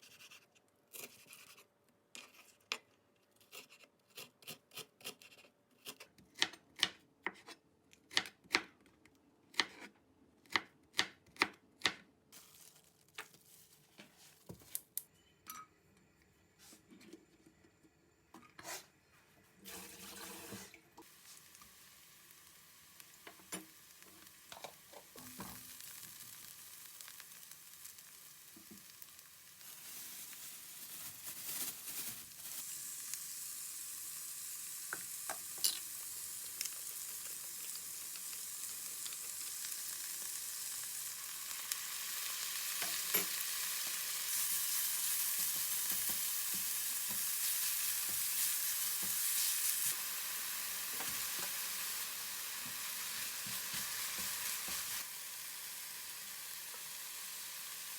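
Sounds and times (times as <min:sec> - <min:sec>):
food frying in a pan: 0:19.7 - 0:57.9.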